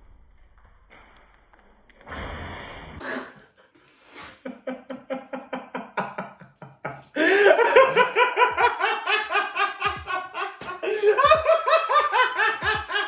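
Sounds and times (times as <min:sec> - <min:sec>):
hard laughter: 0:04.2 - 0:13.0.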